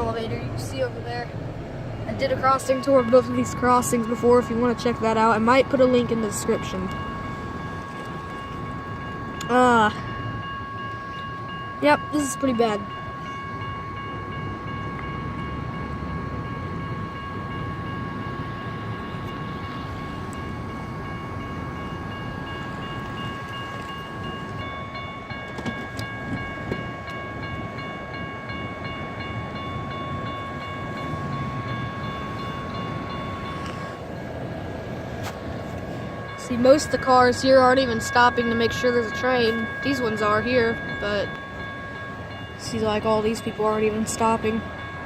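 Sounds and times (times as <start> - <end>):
electronic railroad crossing bells: 0.0 - 45.0
highway traffic noise: 0.0 - 45.0.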